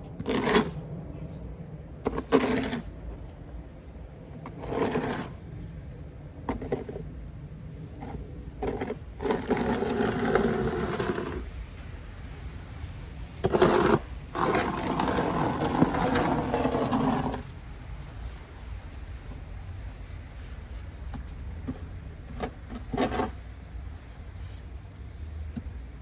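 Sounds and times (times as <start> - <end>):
snow shovel scraping pavement: 0.2 - 0.8, 2.1 - 2.9, 4.4 - 5.4, 8.0 - 25.7.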